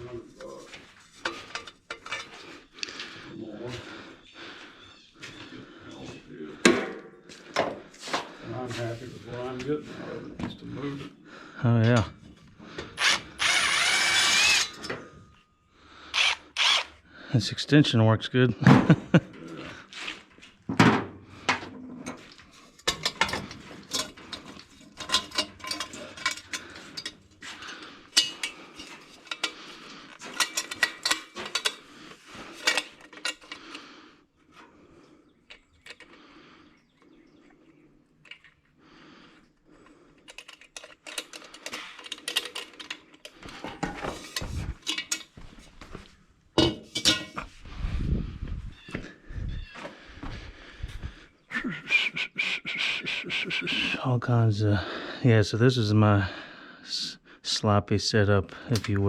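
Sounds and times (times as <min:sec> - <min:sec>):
metal hand tools clinking: 0:22.8 - 0:29.6, 0:30.2 - 0:31.8, 0:44.2 - 0:45.3, 0:46.7 - 0:47.4.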